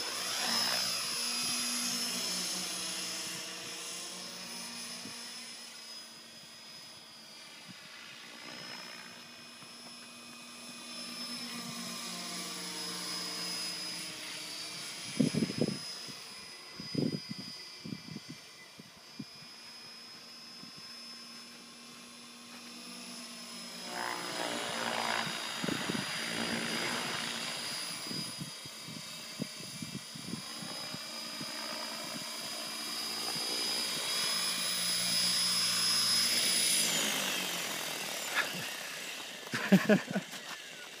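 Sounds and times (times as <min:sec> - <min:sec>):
toy helicopter motor whine: 0:00.0 - 0:41.0.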